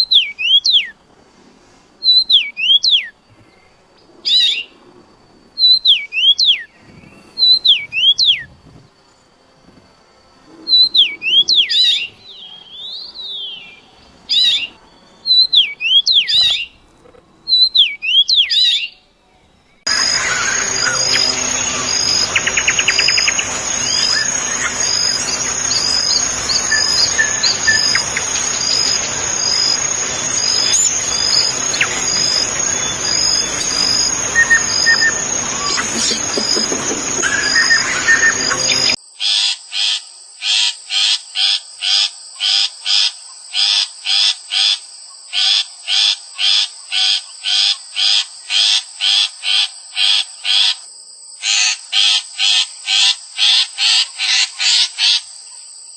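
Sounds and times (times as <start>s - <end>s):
high-pitched insect drone: 2.9s - 18.9s, 19.7s - 39.0s
birds chirping and singing: 5.6s - 39.0s
rhythmic repeated call: 19.9s - 39.0s.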